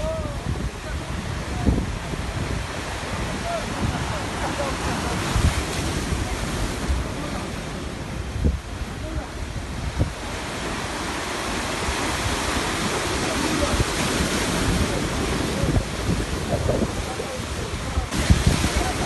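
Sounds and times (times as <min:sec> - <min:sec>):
sea waves washing in: 0:00.0 - 0:19.0
wind buffeting microphone: 0:00.0 - 0:19.0.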